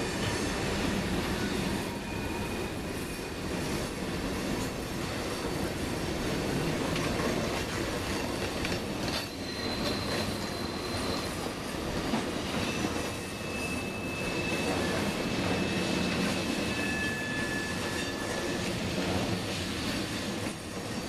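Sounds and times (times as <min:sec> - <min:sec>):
steel wheels rumbling on rail: 0:00.0 - 0:21.0
high wheel squeal: 0:00.1 - 0:03.9, 0:08.9 - 0:21.0.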